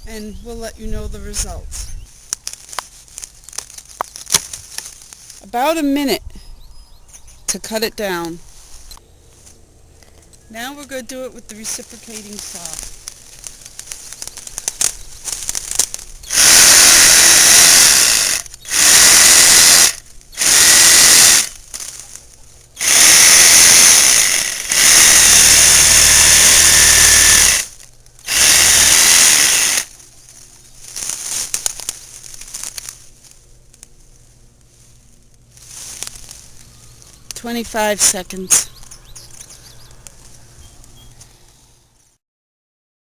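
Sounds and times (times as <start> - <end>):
quiet crackling: 0.2 - 6.1, 6.9 - 42.2
reciprocating saw cutting stems: 8.1 - 41.6.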